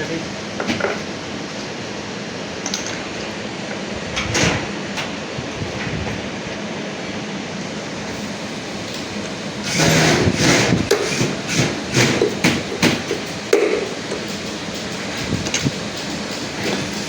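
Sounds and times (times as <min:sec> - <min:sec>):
washing machine drum turning: 0:09.0 - 0:17.0.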